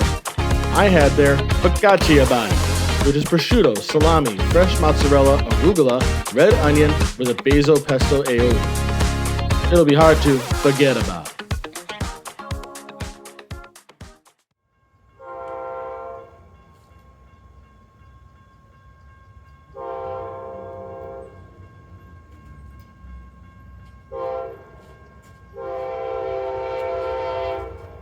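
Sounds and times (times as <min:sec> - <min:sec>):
train rumbling: 0:00.0 - 0:11.2, 0:15.5 - 0:28.0
locomotive air horn blasts: 0:15.2 - 0:16.4, 0:19.8 - 0:21.3, 0:24.1 - 0:24.7, 0:25.6 - 0:28.0.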